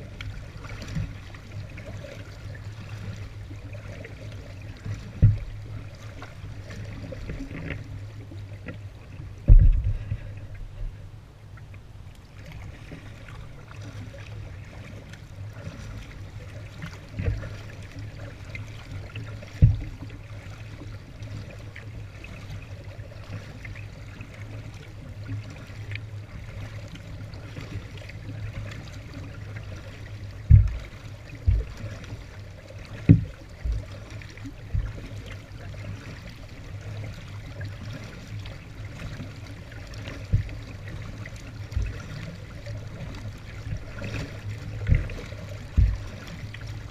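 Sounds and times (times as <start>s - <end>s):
low thumps: 5.2s - 5.6s, 9.4s - 11.0s, 30.4s - 30.8s, 44.8s - 46.1s
water dripping off paddle: 11.6s - 46.9s.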